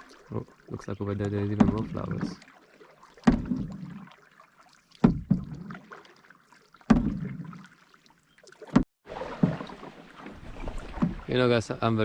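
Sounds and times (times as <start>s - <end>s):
paddle splash and knock: 0.0s - 12.0s
water swishing along boat: 0.0s - 12.0s.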